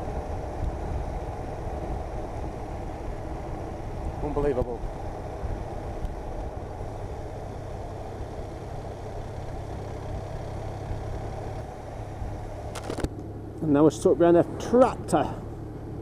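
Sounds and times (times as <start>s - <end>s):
motorcycle engine cruising: 0.0s - 16.0s
wind and road noise: 0.0s - 16.0s.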